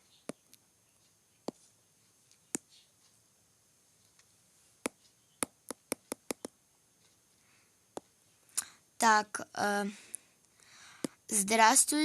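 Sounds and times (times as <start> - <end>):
sharp clicks or taps: 4.8 - 6.6, 11.0 - 11.2.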